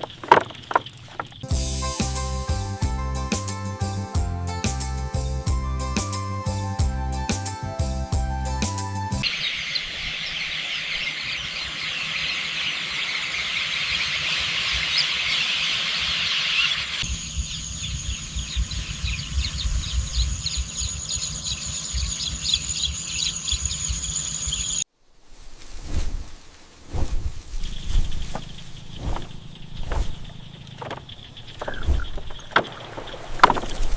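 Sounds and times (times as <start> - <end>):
birds chirping: 0.0 - 2.7, 9.1 - 24.9, 27.5 - 33.9.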